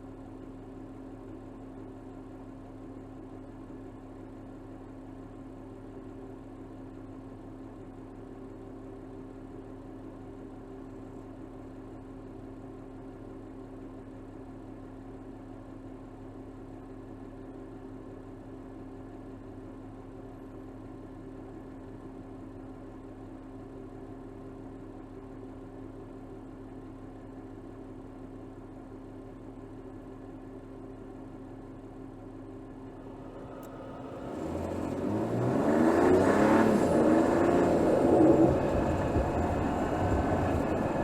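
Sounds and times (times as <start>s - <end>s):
car engine humming: 32.9s - 41.0s.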